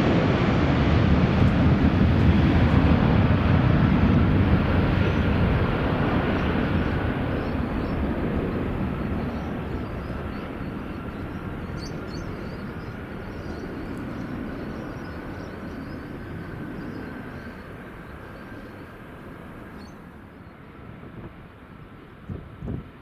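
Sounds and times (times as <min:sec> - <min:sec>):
jet engines rumbling: 0:00.0 - 0:22.6.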